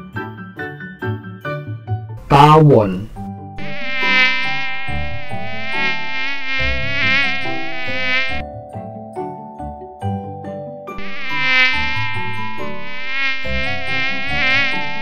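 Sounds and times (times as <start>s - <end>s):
light background music: 0.0s - 15.0s
bee buzzing in flight: 3.6s - 8.4s, 11.0s - 15.0s.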